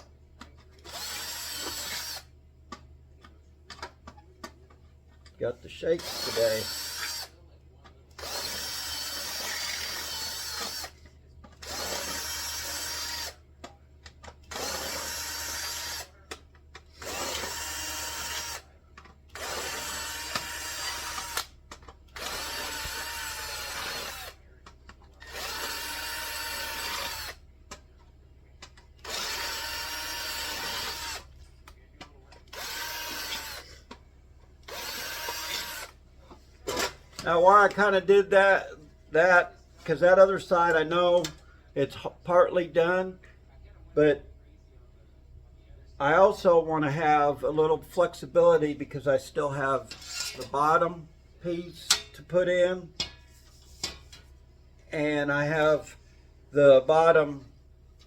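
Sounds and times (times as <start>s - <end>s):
power drill drilling into metal: 0.8s - 2.3s, 6.0s - 7.3s, 8.2s - 11.0s, 11.6s - 13.4s, 14.4s - 16.1s, 16.9s - 18.7s, 19.3s - 24.4s, 25.2s - 27.4s, 29.0s - 31.3s, 32.5s - 33.8s, 34.6s - 36.0s.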